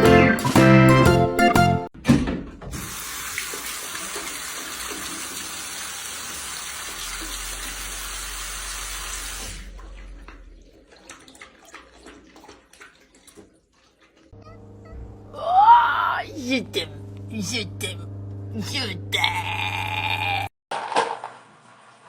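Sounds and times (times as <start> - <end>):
water running from tap: 2.7 - 14.4.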